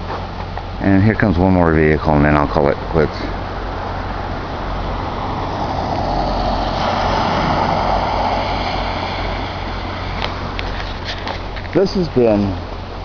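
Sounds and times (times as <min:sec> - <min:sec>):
vehicle splashing through floodwater: 0:03.5 - 0:12.3.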